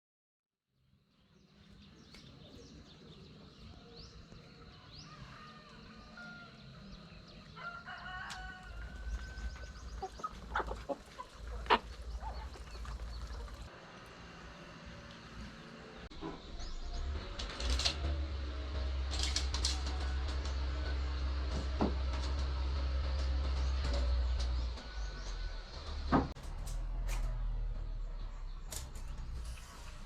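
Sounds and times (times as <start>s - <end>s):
rooster crowing: 4.8s - 10.8s
bird chirps: 8.7s - 13.7s.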